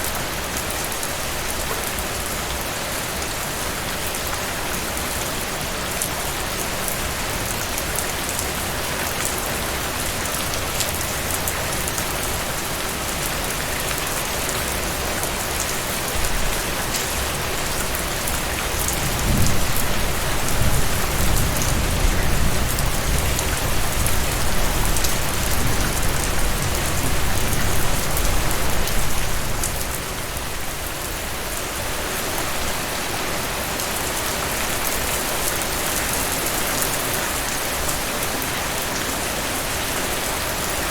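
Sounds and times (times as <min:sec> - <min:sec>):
heavy rain falling: 0:00.0 - 0:40.9
low rumble of thunder: 0:18.8 - 0:29.8.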